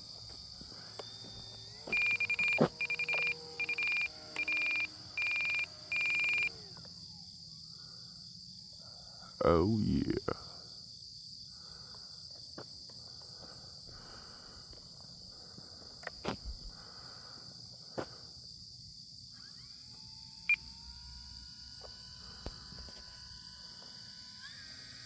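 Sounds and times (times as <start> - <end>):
electric motor whine: 0.0 - 8.1, 19.3 - 25.0
insect chorus: 0.0 - 25.0.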